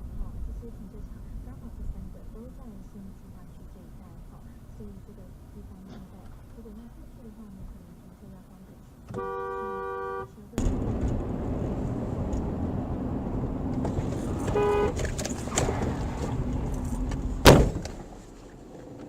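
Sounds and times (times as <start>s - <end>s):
car road and engine noise: 0.0s - 19.0s
car horn honk: 9.1s - 10.8s, 13.9s - 15.8s
loud collision bang: 17.4s - 18.0s.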